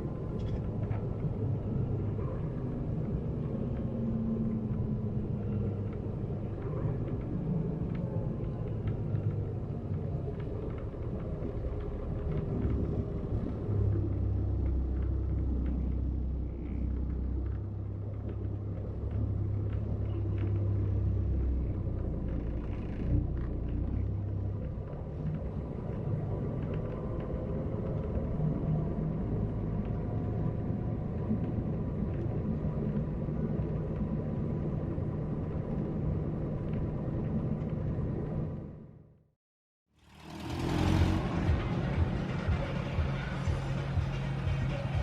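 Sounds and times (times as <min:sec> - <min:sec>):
coach engine and road rumble: 0:40.0 - 0:45.0.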